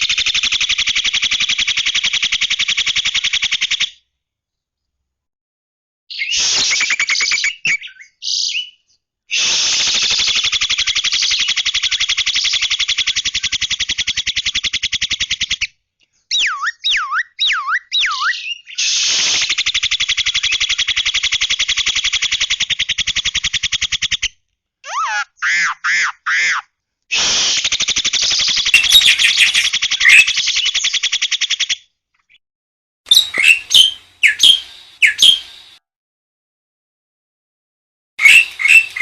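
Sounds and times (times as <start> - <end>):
starling looping whistles: 28.4 - 30.7, 33.1 - 35.7, 38.2 - 39.0
starling buzzing rattles: 38.2 - 39.0.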